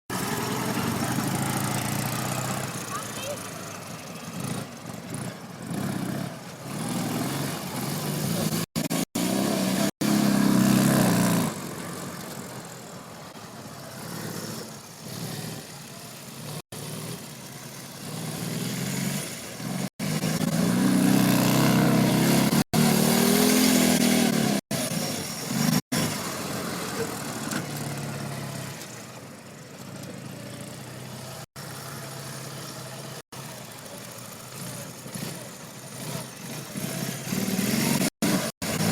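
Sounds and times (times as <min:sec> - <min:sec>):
motorcycle engine revving hard: 0:00.1 - 0:03.3, 0:04.3 - 0:12.0, 0:13.9 - 0:28.8, 0:34.5 - 0:38.9.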